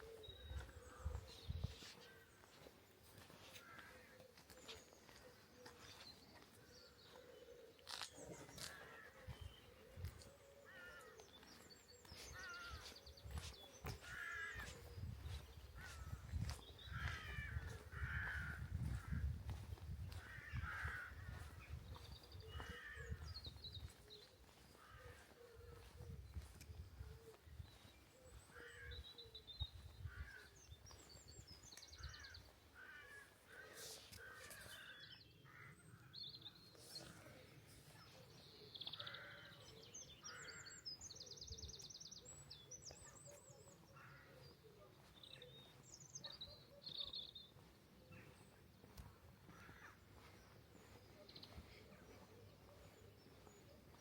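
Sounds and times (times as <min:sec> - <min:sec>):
songbirds trilling and chirping: 0:00.0 - 0:54.0
crows cawing: 0:03.2 - 0:04.5, 0:08.5 - 0:09.5, 0:10.6 - 0:13.0, 0:13.8 - 0:19.3, 0:20.0 - 0:23.4, 0:24.7 - 0:25.9, 0:28.3 - 0:29.2, 0:30.0 - 0:30.6, 0:32.0 - 0:36.1, 0:38.9 - 0:39.6, 0:40.2 - 0:40.8, 0:44.0 - 0:44.4, 0:49.4 - 0:50.4.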